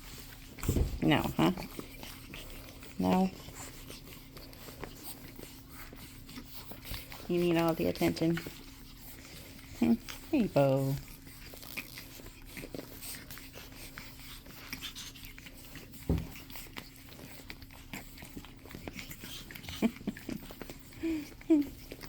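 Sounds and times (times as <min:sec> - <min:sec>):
thump: 0:00.6 - 0:01.0, 0:16.0 - 0:16.4.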